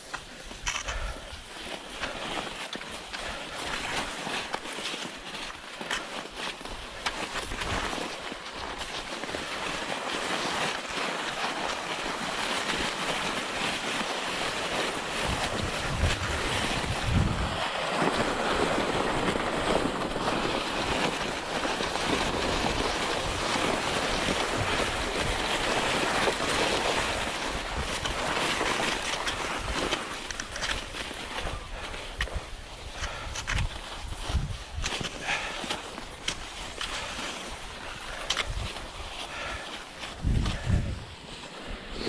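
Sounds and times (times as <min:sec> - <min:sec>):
skis sliding on tracks: 0:00.0 - 0:42.0
wind on microphone: 0:15.2 - 0:19.8, 0:31.4 - 0:35.4, 0:40.1 - 0:42.0.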